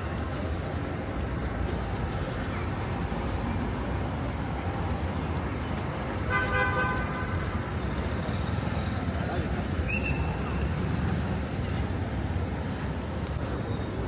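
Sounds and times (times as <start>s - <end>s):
street traffic: 0.0s - 14.0s
car horn honk: 6.3s - 7.4s.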